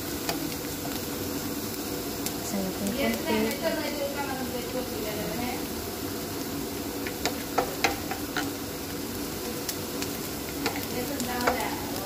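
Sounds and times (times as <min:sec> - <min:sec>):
wooden spoon stirring in pan: 0:00.0 - 0:05.0, 0:06.5 - 0:12.0
onion sizzling in hot oil: 0:00.0 - 0:12.0.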